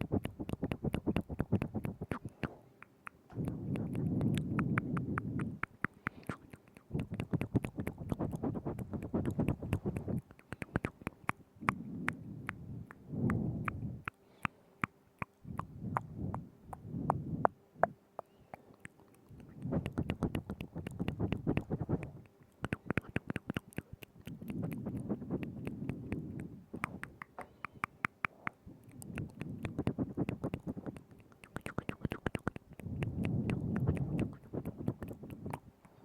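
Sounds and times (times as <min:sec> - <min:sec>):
lip and tongue clicks: 0:00.0 - 0:36.0.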